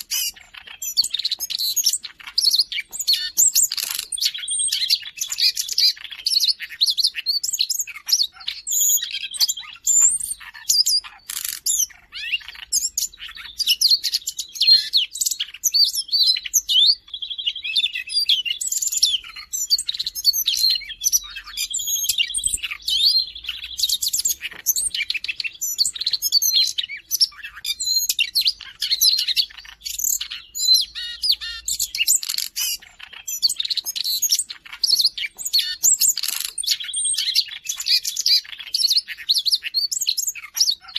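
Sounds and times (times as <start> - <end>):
bird warbling: 0.0 - 6.8, 7.9 - 39.3.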